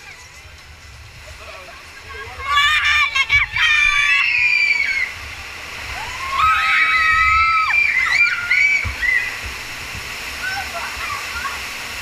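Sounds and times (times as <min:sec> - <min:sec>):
rapids water rushing: 0:00.0 - 0:12.0
people screaming and whooping: 0:02.4 - 0:05.2, 0:05.8 - 0:09.4.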